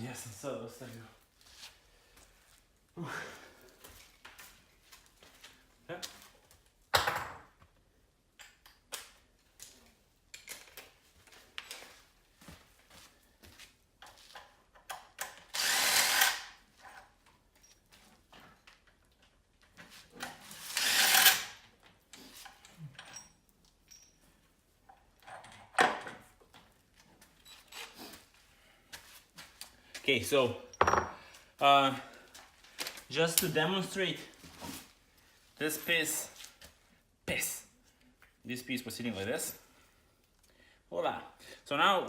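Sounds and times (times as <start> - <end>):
power tool running: 15.5 - 16.5, 20.7 - 21.6.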